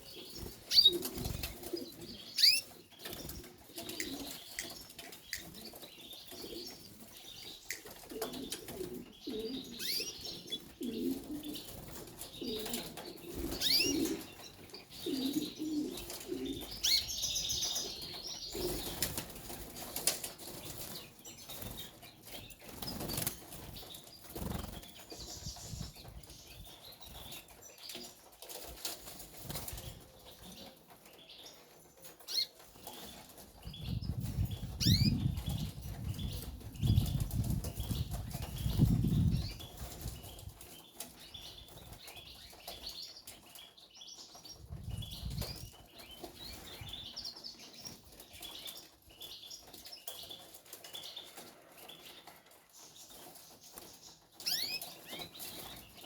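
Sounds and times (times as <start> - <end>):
canaries fluttering wings: 0.0 - 31.2, 44.8 - 56.0.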